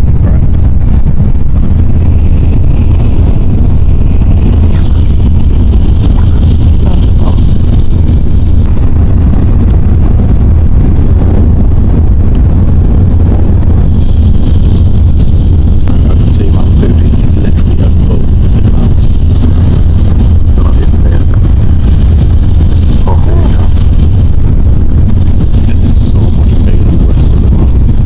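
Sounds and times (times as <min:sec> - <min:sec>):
high-speed train rumbling: 0:00.0 - 0:28.0.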